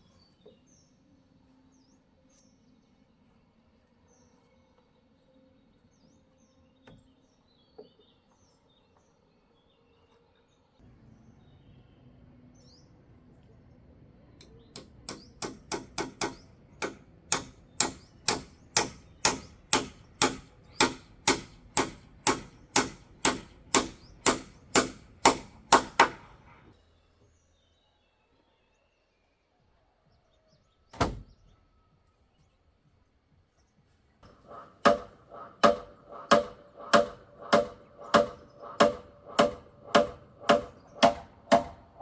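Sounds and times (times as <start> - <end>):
hammer striking: 14.8 - 26.3, 34.2 - 42.0.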